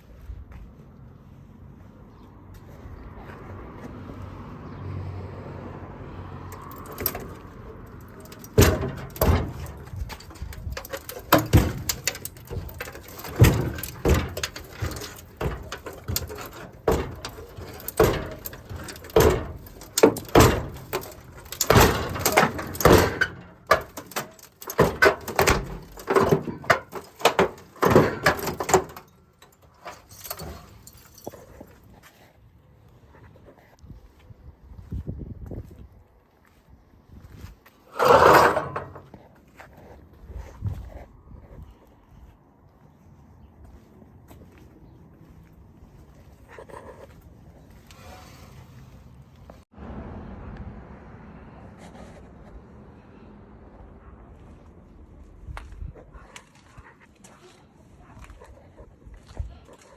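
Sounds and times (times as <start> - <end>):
metal clanks and knocks: 6.4 - 31.8, 37.9 - 39.3.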